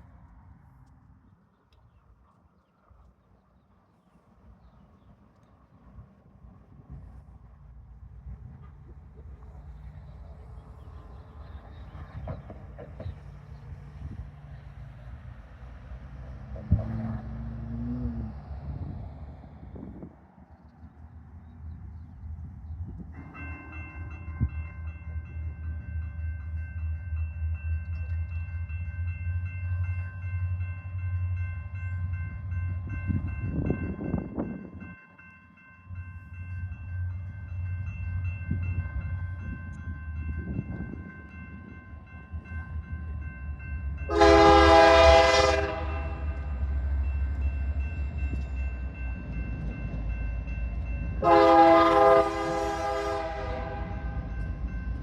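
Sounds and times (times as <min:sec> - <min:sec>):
diesel locomotives rumbling: 0:00.0 - 0:55.0
locomotive air horn blasts: 0:44.1 - 0:46.4, 0:51.2 - 0:54.1.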